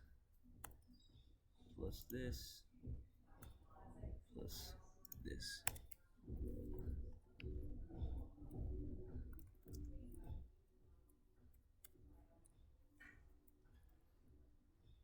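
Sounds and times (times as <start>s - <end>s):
computer mouse clicks: 0.6s - 1.1s, 4.5s - 8.6s, 9.2s - 10.4s
keyboard keystrokes: 4.5s - 10.4s.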